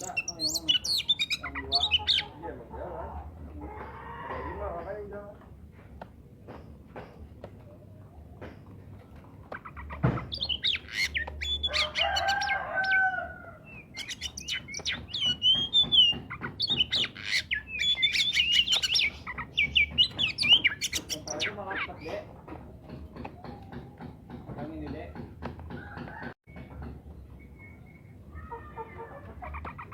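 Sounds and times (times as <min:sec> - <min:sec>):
chicken calling: 0:09.8 - 0:15.4
bird singing whistled notes: 0:13.8 - 0:21.6, 0:27.3 - 0:28.2.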